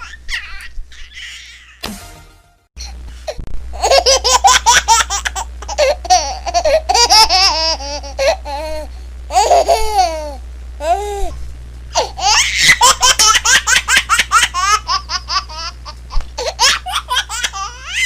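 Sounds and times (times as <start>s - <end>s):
baby laughing: 0.0s - 1.8s, 3.8s - 11.0s, 12.0s - 18.0s.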